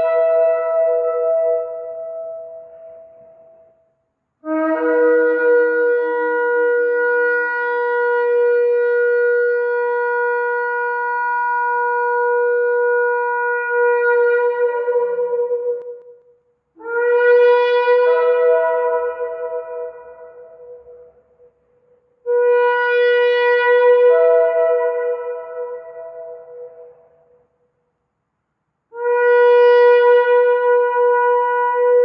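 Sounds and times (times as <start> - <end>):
shofar blasts: 4.4 - 16.2, 16.8 - 21.1, 22.3 - 27.1, 28.9 - 32.0.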